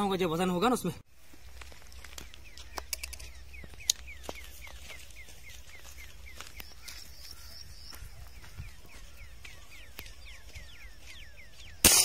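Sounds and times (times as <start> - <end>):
sharp clicks: 2.7 - 4.1.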